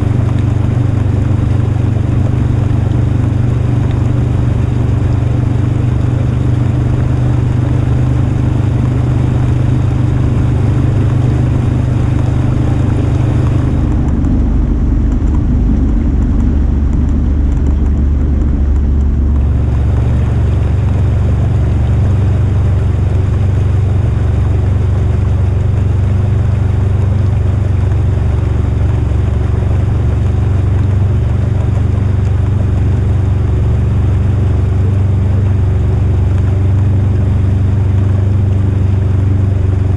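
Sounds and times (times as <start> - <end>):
wind on microphone: 0.0 - 34.4
vehicle engine running: 0.0 - 39.9.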